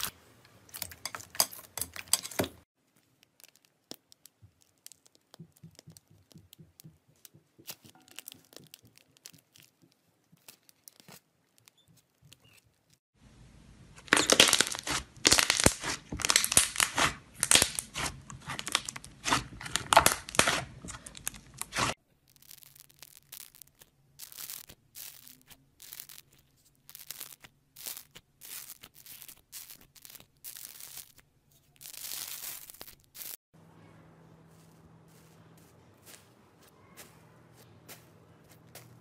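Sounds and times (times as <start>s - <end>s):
slime crackling and tearing: 2.8s - 6.6s, 7.6s - 13.0s, 14.0s - 33.4s
slime crackles and pops: 2.9s - 6.8s, 7.6s - 13.0s, 14.0s - 33.4s.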